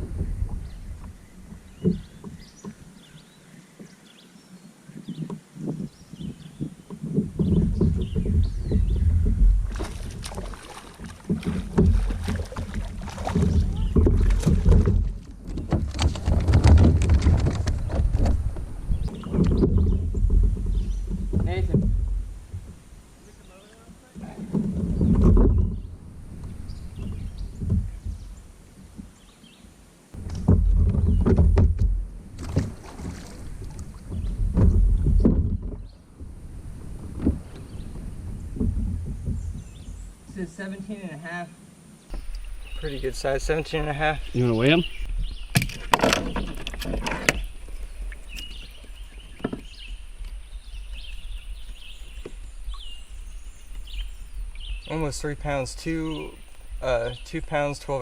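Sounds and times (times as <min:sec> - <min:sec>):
birds chirping: 0:00.0 - 0:31.7, 0:32.4 - 0:58.0
water and wind rumble: 0:00.0 - 0:58.0
short knocks: 0:06.6 - 0:22.9.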